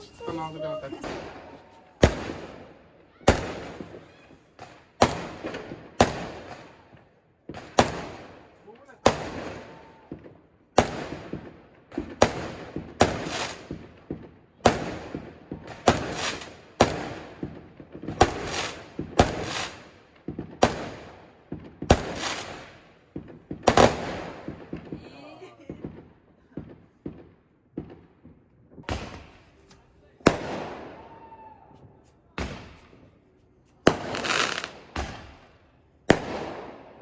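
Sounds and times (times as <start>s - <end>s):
fireworks bangs echoing: 0.0s - 4.0s, 4.6s - 6.7s, 10.2s - 25.0s, 25.7s - 33.2s, 33.8s - 37.0s
small firework pops: 9.1s - 33.2s, 33.8s - 36.9s.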